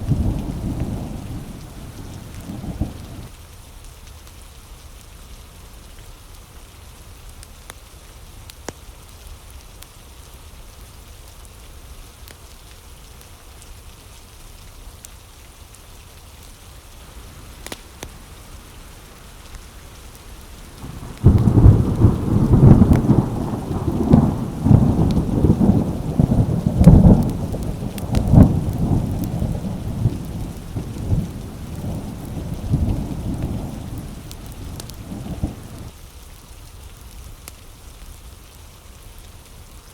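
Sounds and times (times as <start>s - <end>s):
thunder clap and rumble: 0.0s - 3.3s, 17.1s - 35.9s
steady rain falling: 0.0s - 39.9s.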